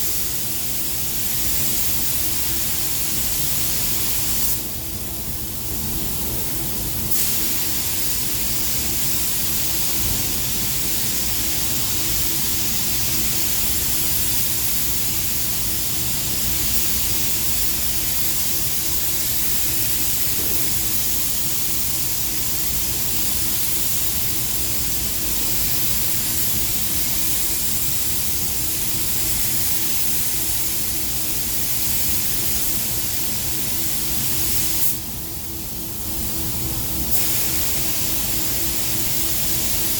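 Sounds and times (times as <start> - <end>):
paint spray gun hissing: 7.1 - 35.0, 37.1 - 39.9.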